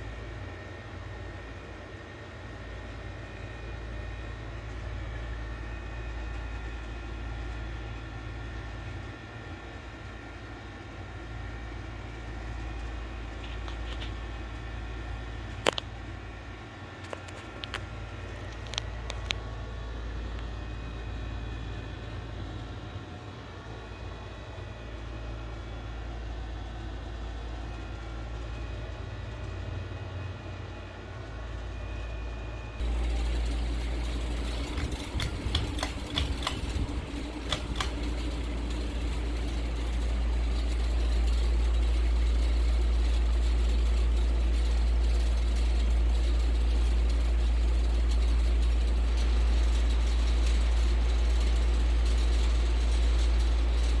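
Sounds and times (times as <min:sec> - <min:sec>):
ceiling fan motor hum: 0:00.0 - 0:54.0
clicks: 0:32.8 - 0:41.4.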